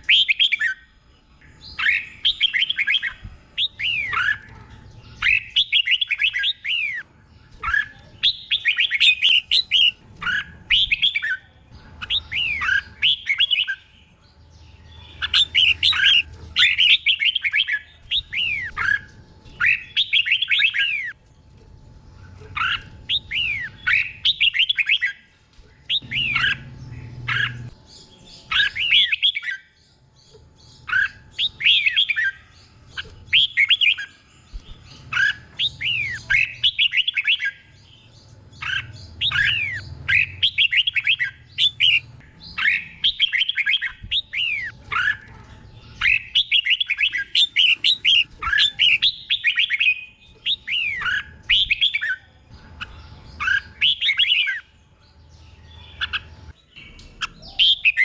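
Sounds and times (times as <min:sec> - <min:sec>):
bulbul singing whistled notes: 0:07.6 - 0:11.4, 0:15.1 - 0:21.1, 0:46.0 - 0:52.2.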